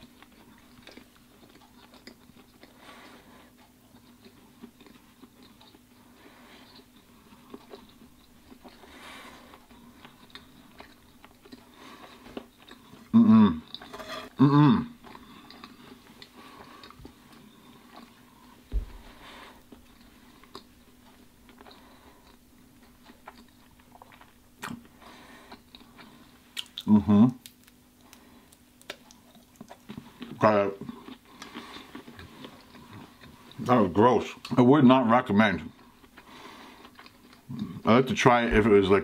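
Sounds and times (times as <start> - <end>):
person chewing food: 0.0 - 34.6, 35.7 - 37.9
low thump: 18.7 - 19.1.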